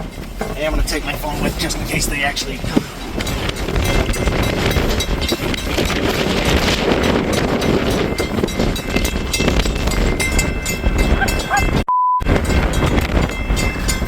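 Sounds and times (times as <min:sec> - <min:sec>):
crossing warning bell ringing: 0:00.0 - 0:14.0
freight train passing: 0:00.0 - 0:14.0
wind buffeting microphone: 0:00.0 - 0:14.0
censor bleep: 0:11.9 - 0:12.3.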